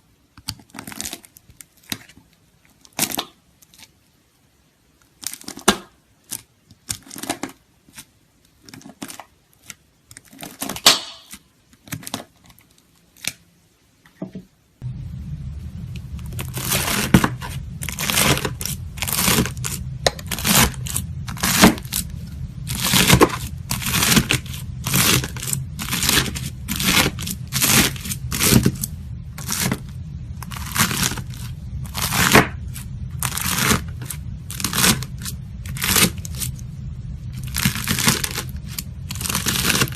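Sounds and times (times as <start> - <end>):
steady low hum: 14.7 - 39.9
knife cutting crunchy slime: 30.4 - 32.6.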